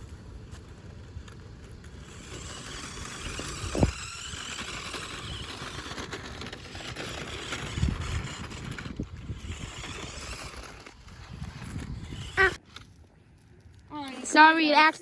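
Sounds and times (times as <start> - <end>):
remote-control car motor hiss: 1.8 - 12.6.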